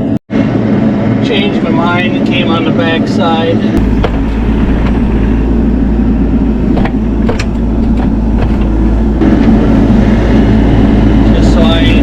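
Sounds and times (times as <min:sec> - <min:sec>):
diesel engine under load: 0:00.0 - 0:12.0
sharp knocks: 0:03.8 - 0:05.3, 0:06.7 - 0:08.8.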